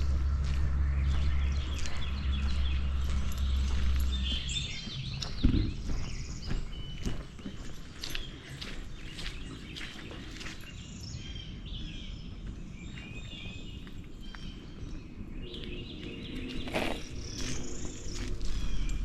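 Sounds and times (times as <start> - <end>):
low background rumble: 0.0 - 6.9
footsteps: 0.0 - 10.8, 16.4 - 19.0
songbirds chirping and trilling: 0.0 - 19.0.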